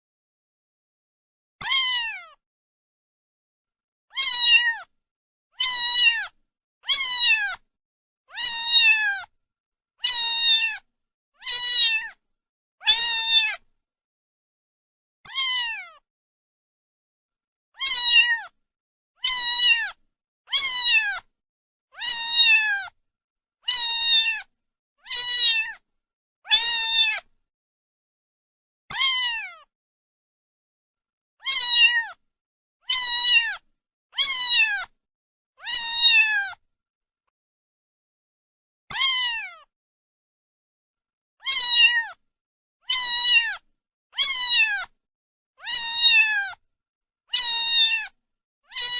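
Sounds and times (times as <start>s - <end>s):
cat meowing: 1.6s - 2.4s, 4.1s - 4.9s, 5.6s - 7.6s, 8.3s - 9.3s, 10.0s - 12.2s, 12.8s - 13.6s, 15.3s - 16.0s, 17.8s - 18.6s, 19.2s - 21.3s, 22.0s - 23.0s, 23.6s - 25.8s, 26.5s - 27.3s, 28.9s - 29.7s, 31.4s - 32.2s, 32.8s - 33.6s, 34.2s - 35.0s, 35.6s - 36.6s, 38.9s - 39.7s, 41.4s - 42.2s, 42.8s - 43.6s, 44.2s - 44.9s, 45.6s - 46.6s, 47.3s - 48.9s.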